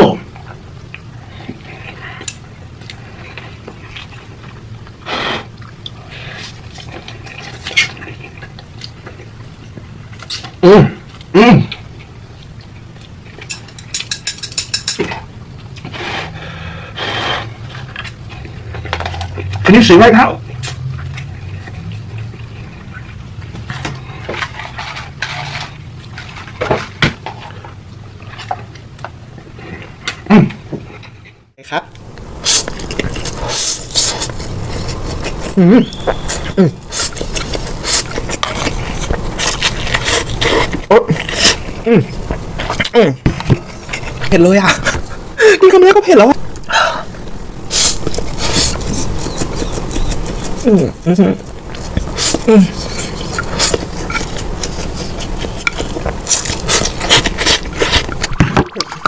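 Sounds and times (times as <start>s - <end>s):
wet chewing and mouth clicks: 0.4s - 14.2s, 32.0s - 45.3s, 46.4s - 59.0s
utensils clicking against a bowl: 13.5s - 15.1s
noodle slurp: 32.4s - 41.8s, 47.6s - 50.7s, 51.7s - 58.8s.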